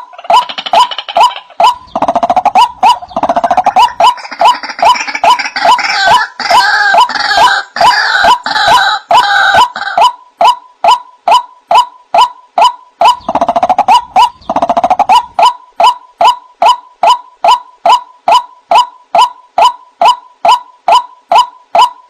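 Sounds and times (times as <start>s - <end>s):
grating buzzy bird call: 0.0s - 22.0s
higher harsher bird calls: 0.0s - 22.0s
waterhen wak calls: 0.0s - 22.0s.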